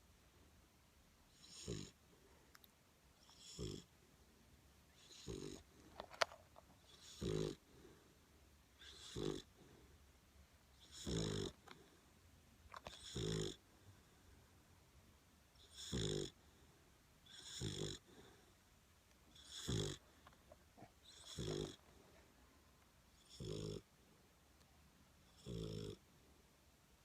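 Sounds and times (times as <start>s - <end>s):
puppy snoring: 1.3s - 2.0s, 3.2s - 4.0s, 4.9s - 5.9s, 6.8s - 8.0s, 8.8s - 9.9s, 10.7s - 12.0s, 12.8s - 13.7s, 15.6s - 16.6s, 17.2s - 18.5s, 19.3s - 20.2s, 20.8s - 22.0s, 23.1s - 23.9s, 25.2s - 26.0s.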